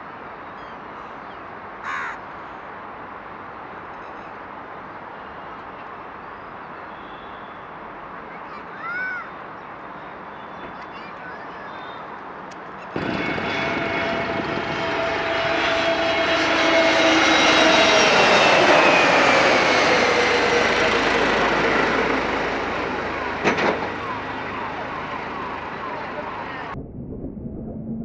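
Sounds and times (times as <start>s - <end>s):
jet airliner passing by: 12.8s - 28.0s.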